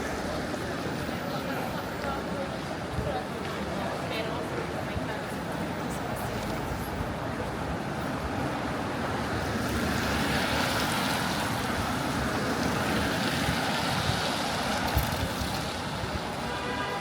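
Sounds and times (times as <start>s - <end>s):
tyres on wet street: 0.0s - 17.0s.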